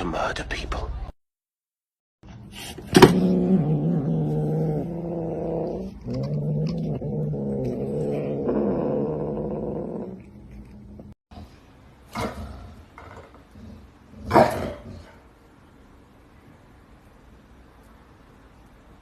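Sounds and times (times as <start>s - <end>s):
cat growling: 2.9s - 11.2s.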